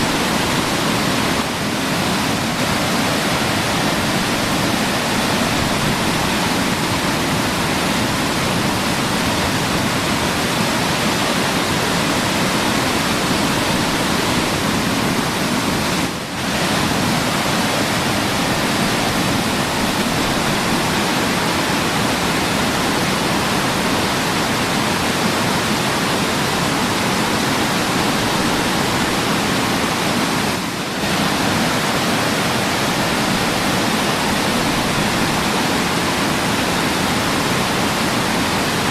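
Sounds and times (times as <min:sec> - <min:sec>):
waterfall pouring and splashing: 0:00.0 - 0:38.9.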